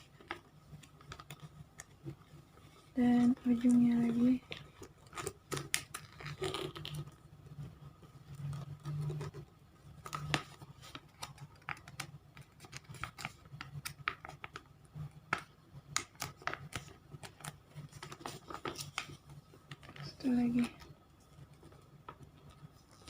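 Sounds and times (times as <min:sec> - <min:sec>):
paper being folded and creased: 0:10.0 - 0:20.8.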